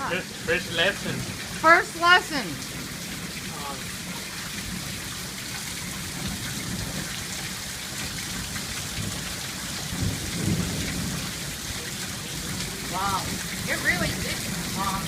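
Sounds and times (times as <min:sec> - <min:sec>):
heavy rain pouring: 0:00.0 - 0:15.0
thunder rumble: 0:08.0 - 0:15.0.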